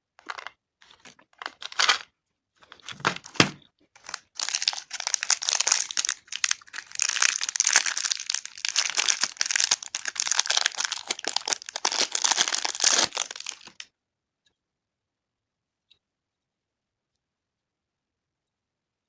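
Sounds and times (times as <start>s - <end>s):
plastic wrapping crinkling: 0.2s - 13.8s.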